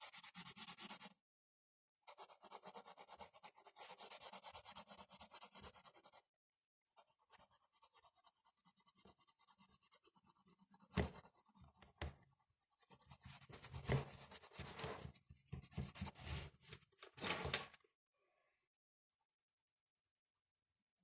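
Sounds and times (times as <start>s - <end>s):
drawing tool scratching paper: 0.0s - 1.2s, 2.0s - 6.2s, 6.9s - 16.6s.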